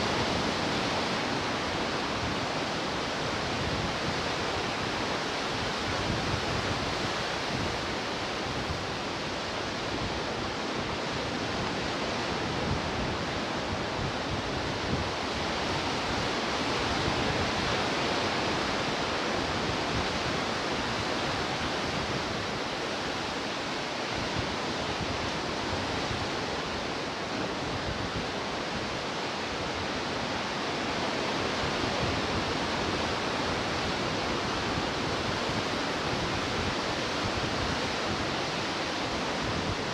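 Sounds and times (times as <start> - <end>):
waves breaking on shore: 15.6 - 39.9.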